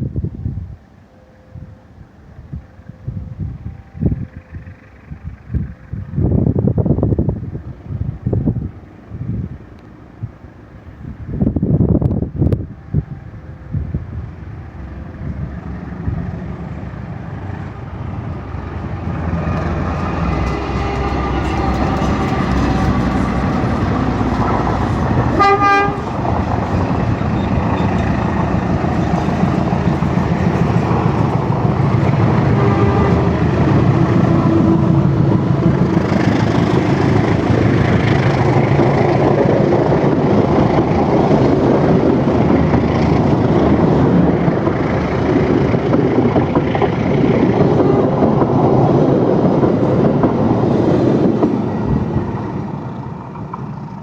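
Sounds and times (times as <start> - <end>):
locomotive engine and rolling noise: 0.0 - 54.0
train horn blast: 19.6 - 36.9.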